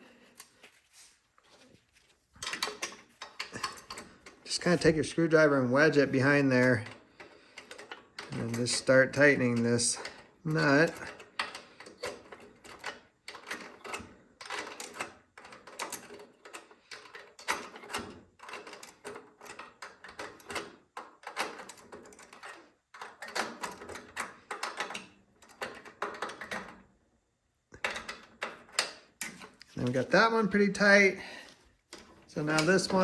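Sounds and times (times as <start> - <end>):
hand tool clicking on metal: 31.9 - 33.0.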